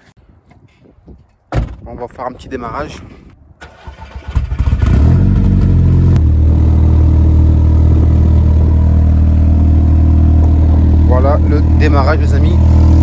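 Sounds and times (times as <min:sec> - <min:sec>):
car engine starting and idling: 0:03.6 - 0:13.0.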